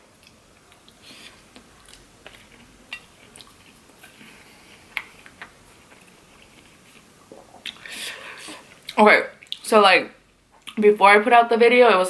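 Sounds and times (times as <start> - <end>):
faint hiss: 0.0 - 10.6
eating clicks and smacks: 0.2 - 3.8, 4.9 - 7.9, 8.7 - 9.7.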